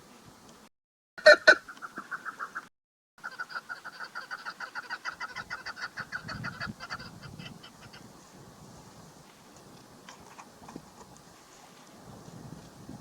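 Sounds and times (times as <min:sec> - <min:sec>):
partridge clucking call: 0:01.2 - 0:08.1.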